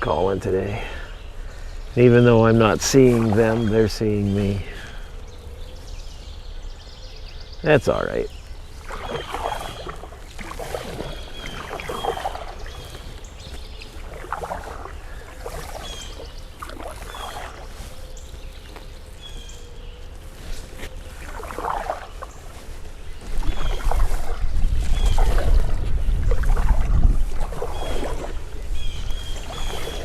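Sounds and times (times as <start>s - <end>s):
birds calling high notes: 0.0s - 25.3s
wind buffeting microphone: 0.0s - 30.0s
canoe paddle swishing in water: 1.9s - 6.4s, 8.3s - 30.0s.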